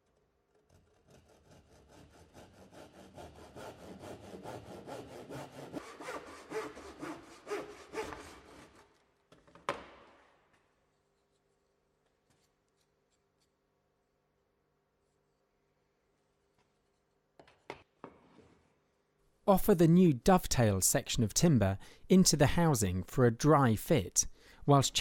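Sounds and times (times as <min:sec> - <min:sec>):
saw cutting through timber: 0:00.9 - 0:08.9.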